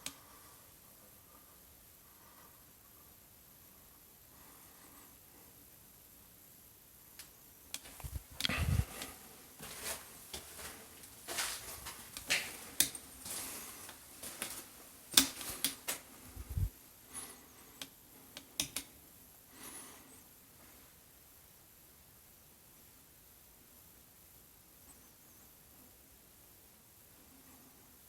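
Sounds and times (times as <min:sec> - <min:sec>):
clicks and knocks of handling: 0:12.1 - 0:16.1.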